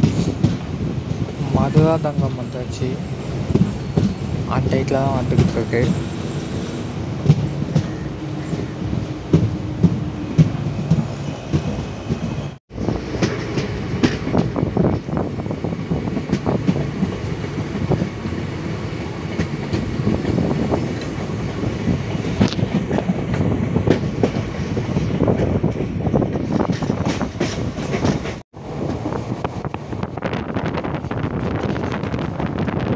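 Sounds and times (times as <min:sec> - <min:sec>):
train rumble: 0:00.0 - 0:32.9
train wheels clattering: 0:03.4 - 0:15.2, 0:16.0 - 0:29.8.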